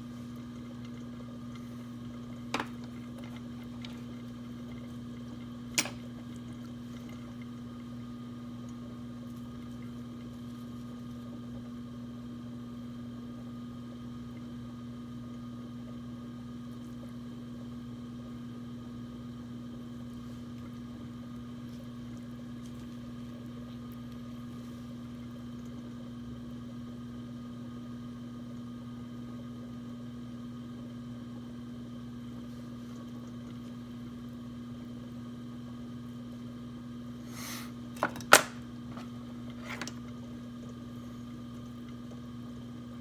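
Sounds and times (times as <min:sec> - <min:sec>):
potter's wheel motor humming: 0:00.0 - 0:15.4, 0:32.0 - 0:43.0.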